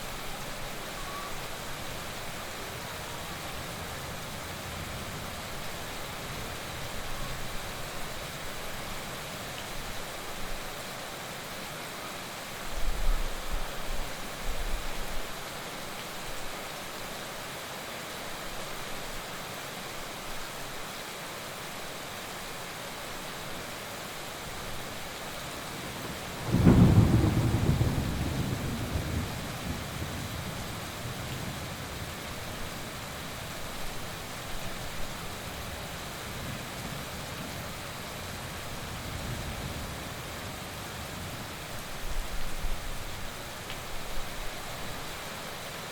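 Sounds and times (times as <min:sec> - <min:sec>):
heavy rain falling: 0:00.0 - 0:45.9
low rumble of thunder: 0:25.7 - 0:32.2
loud thunderclap: 0:26.5 - 0:29.8.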